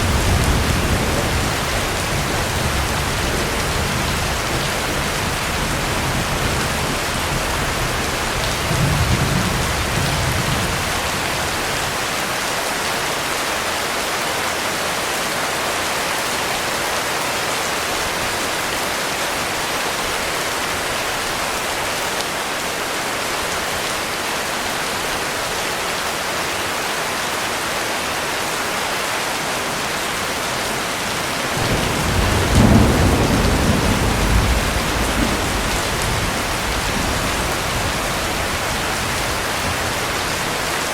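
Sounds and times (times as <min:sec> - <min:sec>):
thunder rumbling: 0:00.0 - 0:12.0, 0:30.2 - 0:40.6
heavy rain falling: 0:00.0 - 0:40.9.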